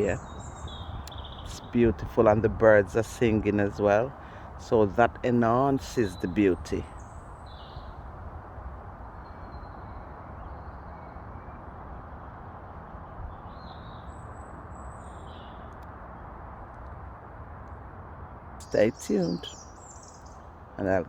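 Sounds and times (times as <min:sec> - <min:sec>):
steady background hiss: 0:00.0 - 0:13.2, 0:18.6 - 0:21.0
wild birds chirping: 0:00.0 - 0:17.0, 0:18.4 - 0:21.0.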